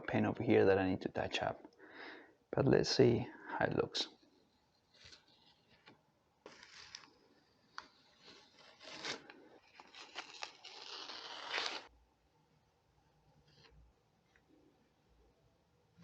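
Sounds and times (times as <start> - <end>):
tape peeling off metal: 8.2 - 11.9.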